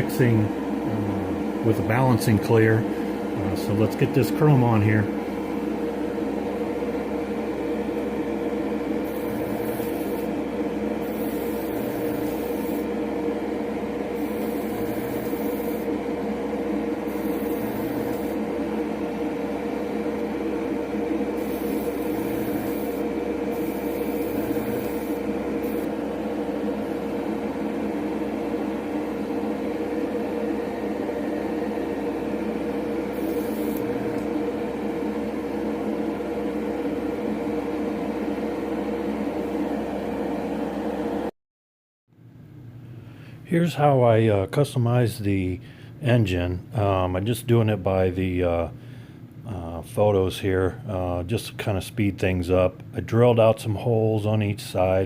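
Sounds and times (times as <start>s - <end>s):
compressor humming: 0.0s - 41.3s, 42.1s - 55.0s
airbrush hissing: 9.0s - 10.4s, 11.0s - 12.9s, 14.2s - 15.9s, 17.0s - 18.4s, 21.4s - 25.9s, 33.1s - 34.0s.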